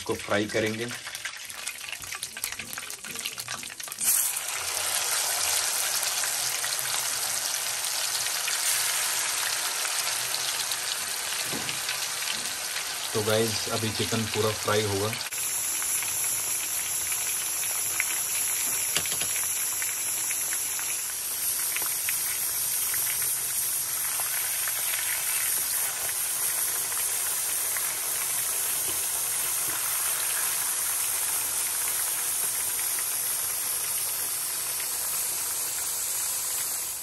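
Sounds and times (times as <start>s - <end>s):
chicken frying in hot oil: 0.0s - 37.0s.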